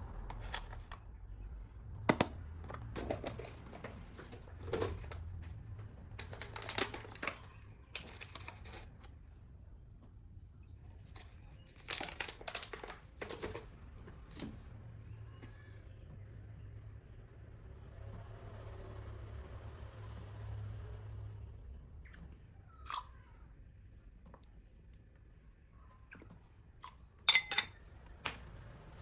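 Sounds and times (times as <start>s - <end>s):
crinkling and rustling: 2.6s - 9.2s, 10.7s - 14.8s.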